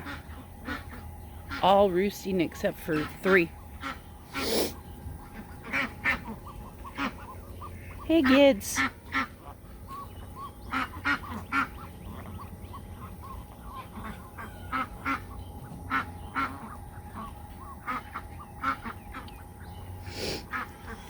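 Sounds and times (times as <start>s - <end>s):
ducks quacking: 0.0s - 21.0s
geese honking: 0.0s - 21.0s.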